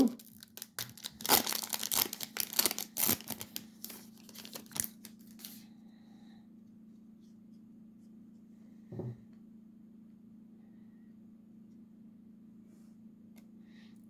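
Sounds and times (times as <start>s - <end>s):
foil wrapper crinkling and tearing: 0.0s - 5.6s
faint low hum: 0.0s - 14.0s.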